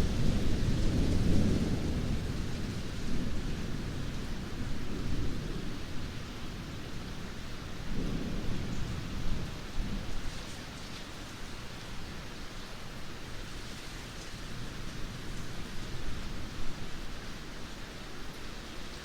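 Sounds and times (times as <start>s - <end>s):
low rumble of thunder: 0.0s - 17.4s
heavy rain: 0.0s - 19.0s.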